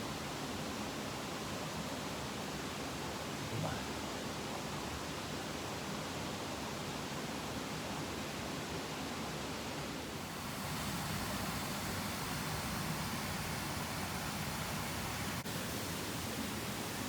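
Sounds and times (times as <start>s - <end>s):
mountain stream flowing: 0.0s - 17.0s.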